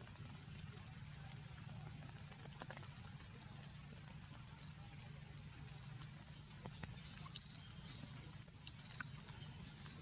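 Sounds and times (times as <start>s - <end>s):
raindrops ticking on surfaces: 0.0s - 10.0s
steady rain hiss: 0.0s - 10.0s.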